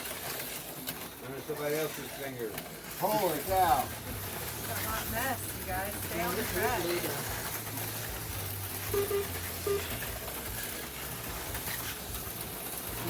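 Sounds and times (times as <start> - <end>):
slot cars running on track: 0.0 - 13.0
short tones: 8.9 - 10.0.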